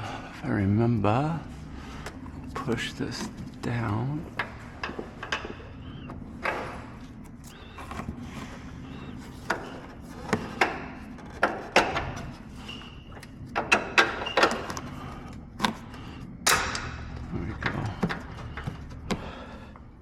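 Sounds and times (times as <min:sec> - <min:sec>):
short squeaks: 0:05.5 - 0:16.2.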